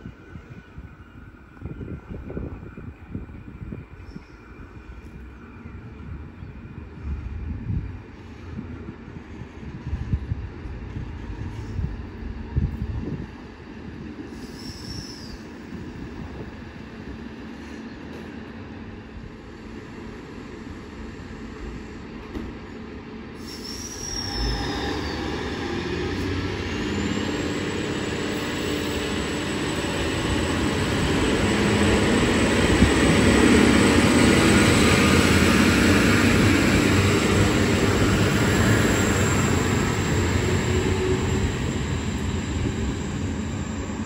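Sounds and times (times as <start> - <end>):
diesel train passing: 0.0 - 44.0
high squeal: 23.4 - 30.8.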